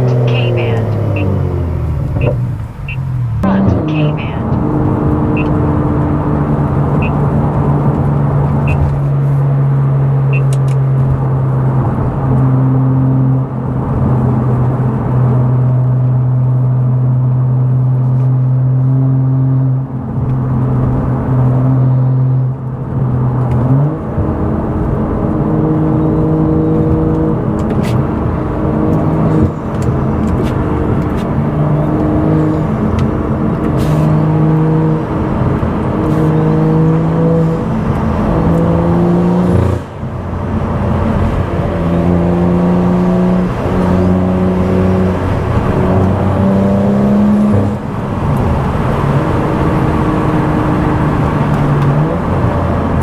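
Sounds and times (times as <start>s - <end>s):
car engine drone: 0.0s - 53.0s.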